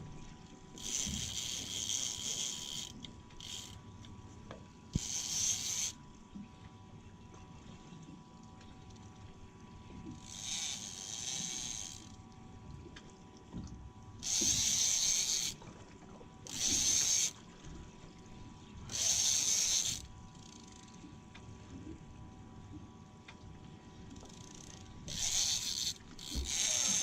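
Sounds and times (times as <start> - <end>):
fishing reel whirring: 0.7 - 4.0, 4.9 - 6.0, 10.1 - 12.3, 14.2 - 15.6, 16.4 - 17.4, 18.8 - 21.0, 24.1 - 27.0.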